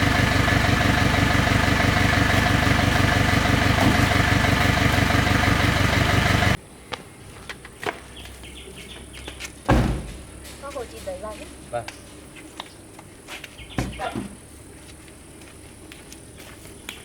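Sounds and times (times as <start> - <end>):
engine idling: 0.0 - 6.6.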